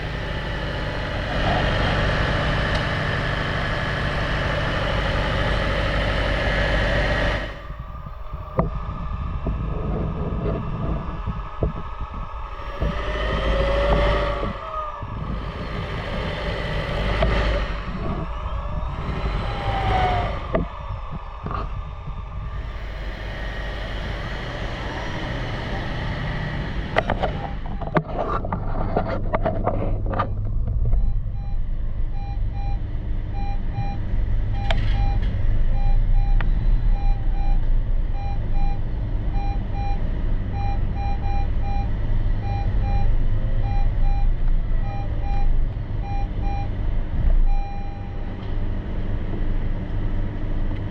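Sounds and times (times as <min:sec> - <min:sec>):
car engine idling: 0:00.0 - 0:08.8, 0:12.2 - 0:28.6
short electronic beeps: 0:31.0 - 0:31.6, 0:32.2 - 0:34.0, 0:34.6 - 0:35.2, 0:35.8 - 0:37.6, 0:38.2 - 0:38.8, 0:39.4 - 0:40.0, 0:40.6 - 0:46.7, 0:47.4 - 0:48.3.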